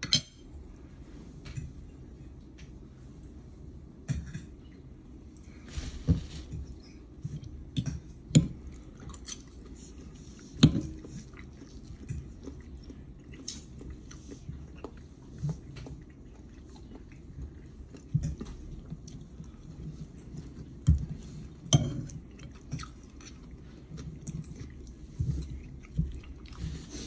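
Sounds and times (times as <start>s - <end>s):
person chewing food: 6.4s - 27.0s.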